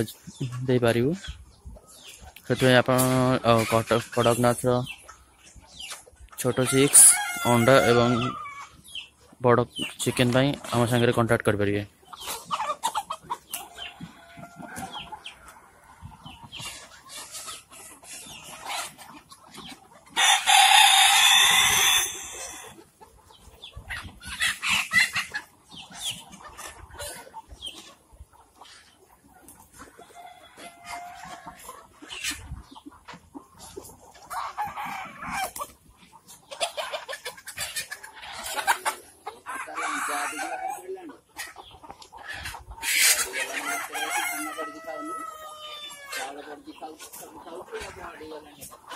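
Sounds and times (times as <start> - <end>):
chickens clucking: 0.0 - 48.9
rooster crowing: 20.2 - 22.6, 43.6 - 46.2.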